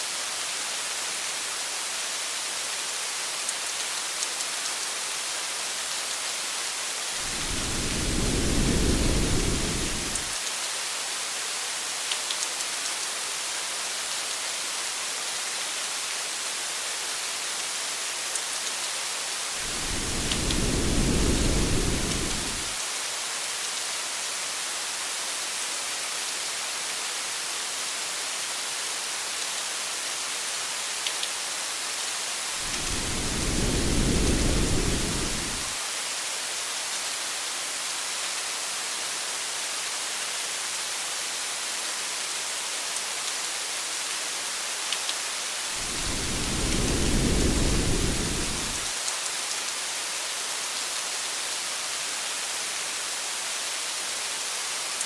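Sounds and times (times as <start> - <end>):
heavy rain hiss: 5.1 - 11.9, 19.1 - 25.5, 31.6 - 36.4, 43.9 - 49.8
low rumbles of thunder: 7.2 - 10.3, 19.6 - 22.8, 32.6 - 35.7, 45.8 - 48.9.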